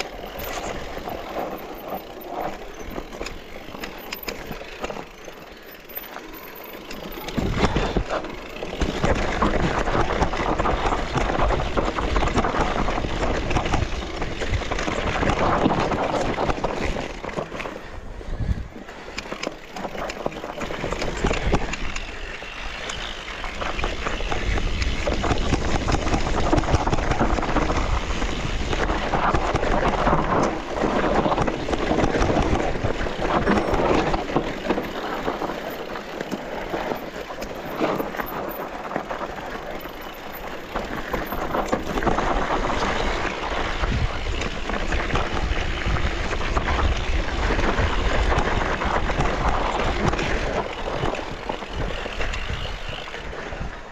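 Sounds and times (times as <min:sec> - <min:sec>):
bike rattling: 0:00.0 - 0:53.9
wind rumbling on microphone: 0:06.8 - 0:53.9
tyres crunching over dirt: 0:18.7 - 0:53.0.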